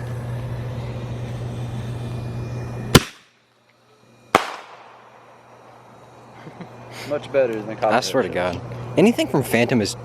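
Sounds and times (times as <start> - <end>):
steady low hum: 0.0 - 10.0
firework bangs: 2.8 - 3.4, 4.3 - 5.3.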